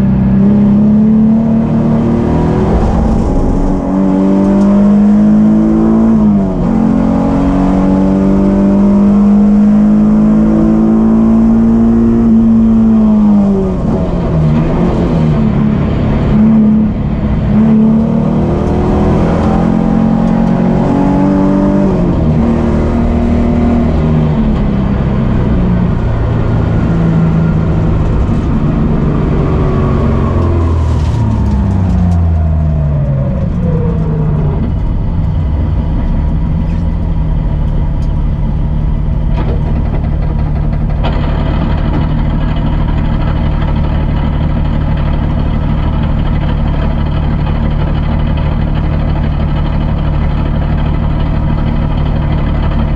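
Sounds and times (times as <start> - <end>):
car engine revving: 0.0 - 52.9.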